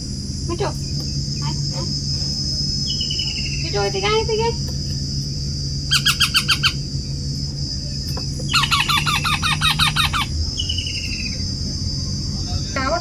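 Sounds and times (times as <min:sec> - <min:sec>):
parrot squawking: 0:05.9 - 0:06.9, 0:08.5 - 0:11.2.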